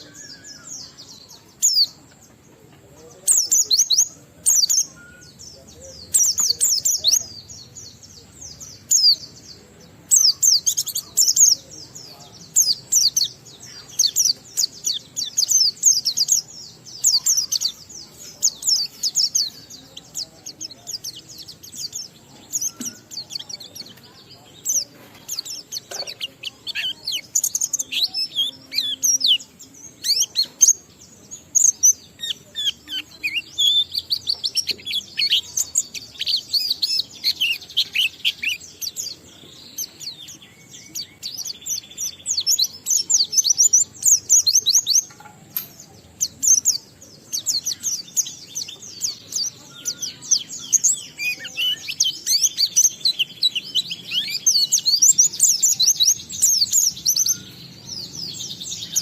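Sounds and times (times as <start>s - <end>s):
bird singing rapid chirps: 0.0s - 59.0s.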